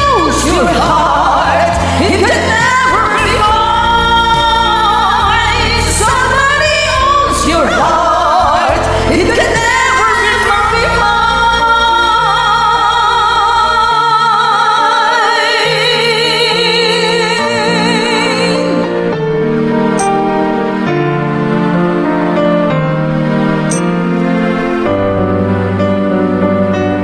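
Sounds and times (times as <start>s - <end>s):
person singing karaoke: 0.0s - 19.1s
backing track music: 0.0s - 27.0s.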